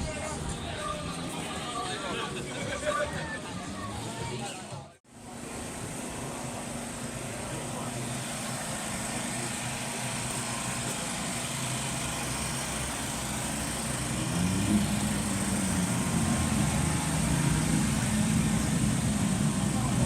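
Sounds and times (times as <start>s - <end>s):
motorcycle engines running: 5.2s - 20.0s.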